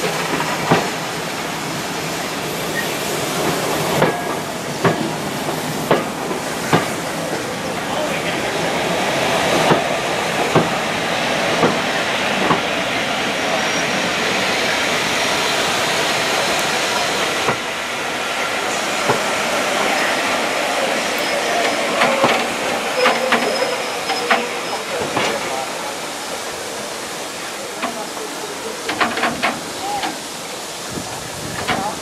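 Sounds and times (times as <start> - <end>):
train wheels rumbling: 0.0 - 32.0
clicks over rail joints: 28.8 - 30.2.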